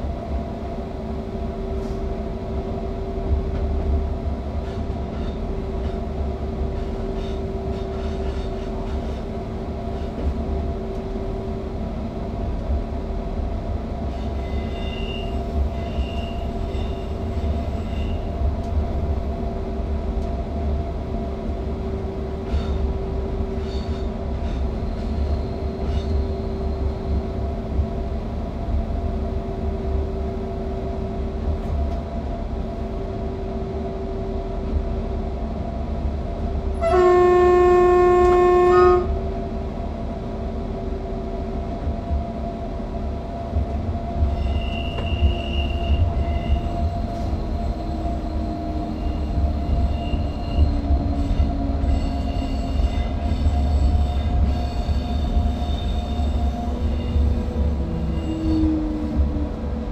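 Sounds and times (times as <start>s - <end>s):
electric train rumble with motor hum: 0.0s - 59.9s
train horn blast: 36.7s - 39.2s.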